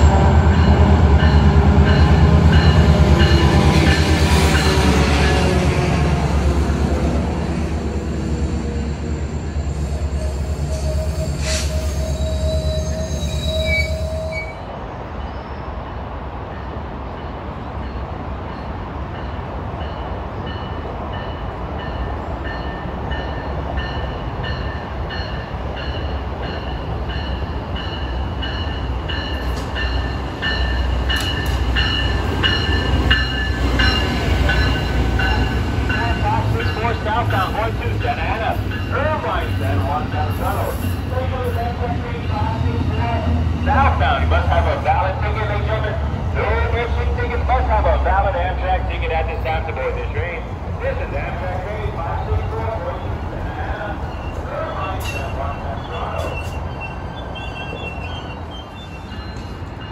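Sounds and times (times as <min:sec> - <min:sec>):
diesel locomotive rumbling past: 0:00.0 - 0:59.9
train wheels and brakes squealing: 0:08.7 - 0:15.8, 0:19.9 - 0:41.7, 0:53.6 - 0:59.9.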